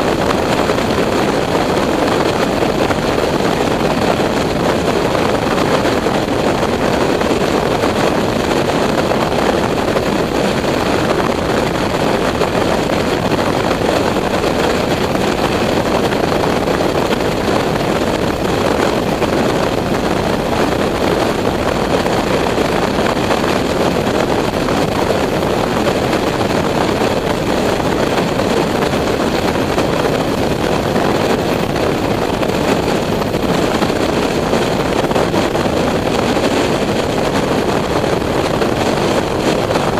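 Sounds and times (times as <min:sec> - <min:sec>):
wind blowing over microphone: 0:00.0 - 0:39.9.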